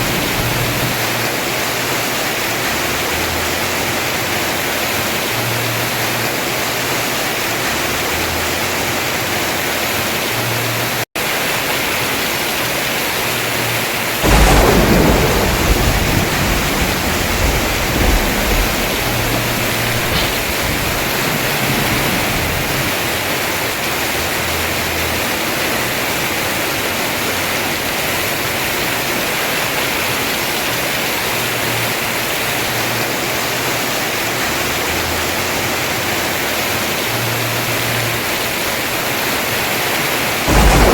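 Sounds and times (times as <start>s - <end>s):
thunder rumbling: 0.0s - 4.1s, 14.1s - 30.5s, 39.7s - 40.9s
heavy rain on a roof: 0.0s - 40.9s.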